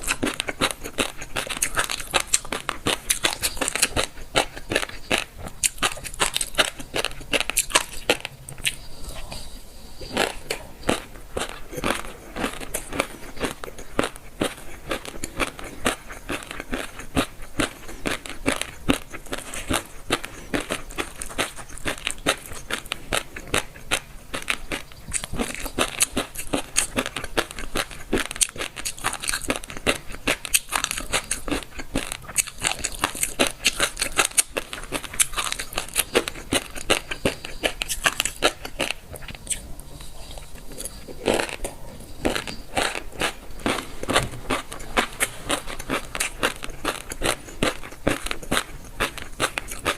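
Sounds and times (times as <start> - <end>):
chewing crisp food: 0.0 - 49.9.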